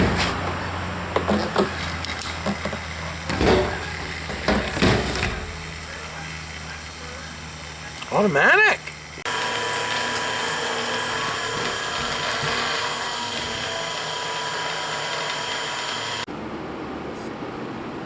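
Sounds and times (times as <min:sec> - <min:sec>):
small electric motor whirring: 0:09.1 - 0:16.3.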